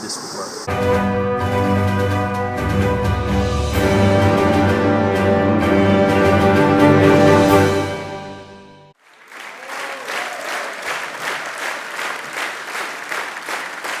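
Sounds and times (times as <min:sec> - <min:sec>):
background music: 0:00.7 - 0:09.0
group applauding: 0:09.0 - 0:14.0.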